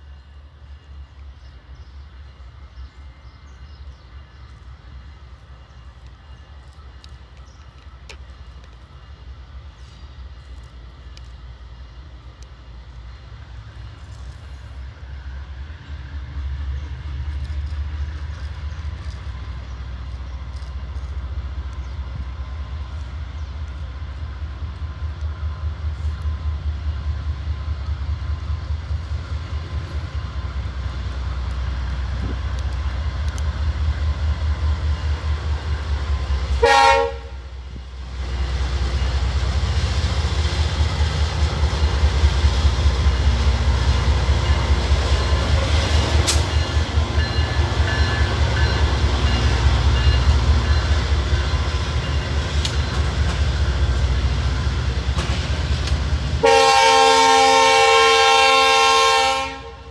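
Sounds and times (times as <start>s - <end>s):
diesel locomotive engines rumbling: 0.0s - 59.9s
locomotive horn blast: 36.5s - 37.5s, 56.4s - 59.9s.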